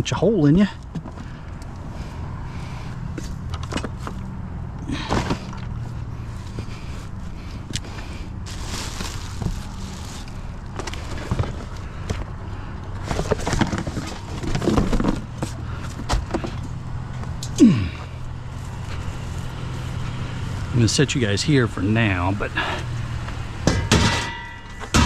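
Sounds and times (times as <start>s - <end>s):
vehicle engine idling: 0.6s - 23.7s
scrap items clattering: 4.9s - 5.7s, 7.5s - 12.3s, 13.0s - 16.6s.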